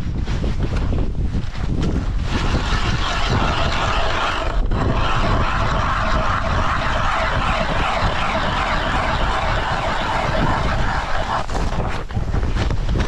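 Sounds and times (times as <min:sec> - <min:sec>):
wind noise on microphone: 0:00.0 - 0:13.0
ice auger drilling: 0:02.2 - 0:12.0.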